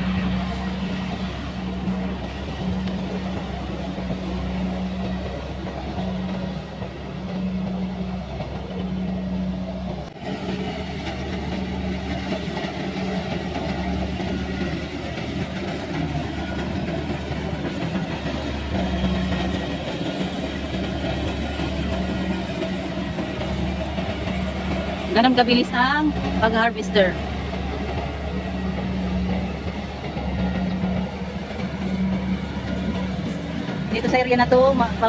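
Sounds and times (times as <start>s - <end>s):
combine harvester engine drone: 0.0s - 35.0s.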